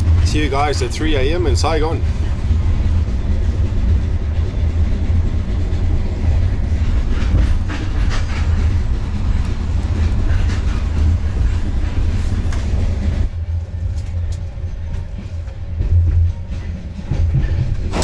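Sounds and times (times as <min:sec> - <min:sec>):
train rumbling on rails: 0:00.0 - 0:18.0
wheels clacking over rail joints: 0:00.0 - 0:18.0.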